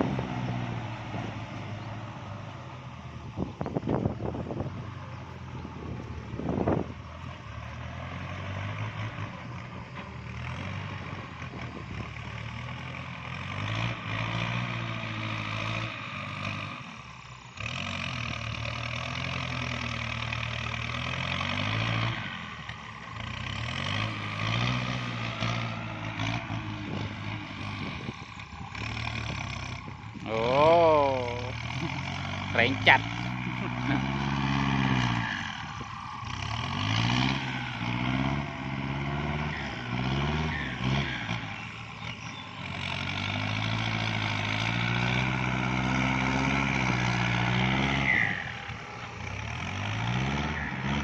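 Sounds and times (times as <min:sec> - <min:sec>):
diesel tractor engine working hard: 0:00.0 - 0:51.0.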